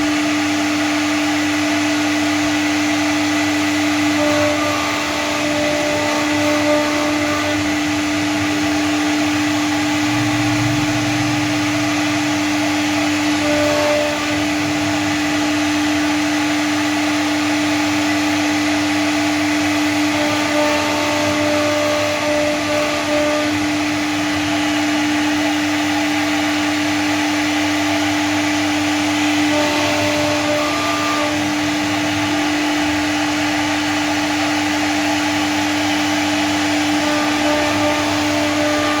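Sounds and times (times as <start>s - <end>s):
cnc router spindle humming: 0.0s - 39.0s
axis motors whining: 3.9s - 16.3s, 20.0s - 25.4s, 28.9s - 33.8s, 36.4s - 39.0s.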